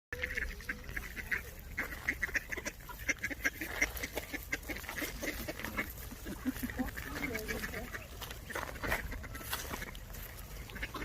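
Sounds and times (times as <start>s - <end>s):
ducks quacking: 0.1s - 11.0s.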